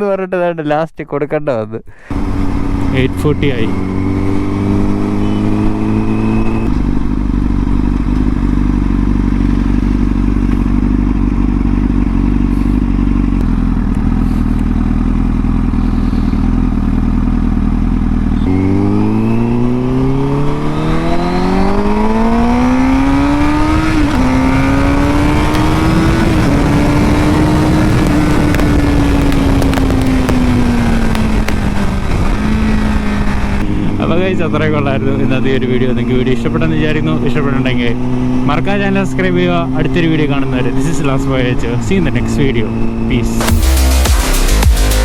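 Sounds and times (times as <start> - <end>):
motorcycle engine idling and revving: 2.0 - 45.0.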